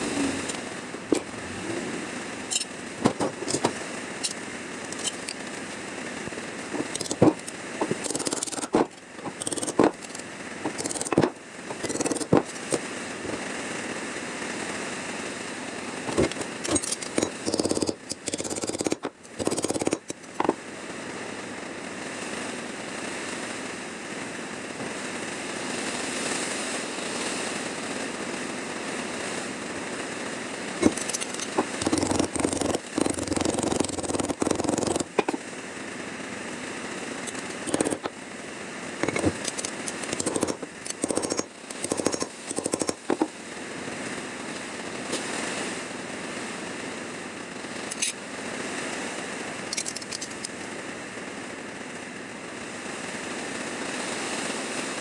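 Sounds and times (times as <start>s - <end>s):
sharp clicks and knocks: 2.5s - 5.5s, 6.7s - 13.4s, 16.1s - 20.6s, 30.8s - 35.4s, 37.3s - 38.1s, 39.0s - 43.3s, 49.7s - 50.5s
power tool on sheet steel: 6.7s - 13.5s, 16.0s - 20.5s, 30.8s - 35.4s, 37.2s - 38.1s, 39.0s - 43.3s.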